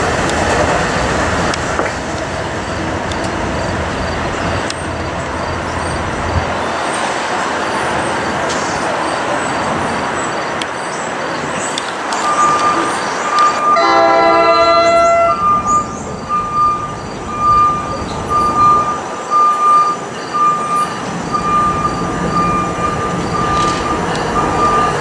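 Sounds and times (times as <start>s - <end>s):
electric train passing: 0.0s - 25.0s
train air horn: 13.6s - 15.8s.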